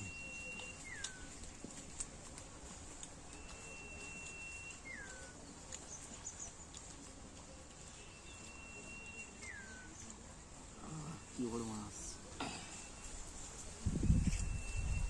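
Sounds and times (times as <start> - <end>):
bird whistled call: 0.0 - 1.4, 3.3 - 5.4, 8.0 - 10.1, 14.4 - 15.0.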